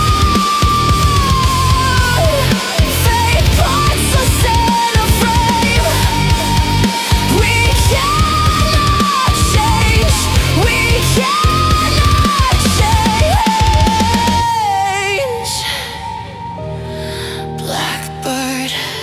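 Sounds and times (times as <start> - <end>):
heavy drums and bass: 0.0 - 14.6
electronic rock lead melody: 0.0 - 17.6.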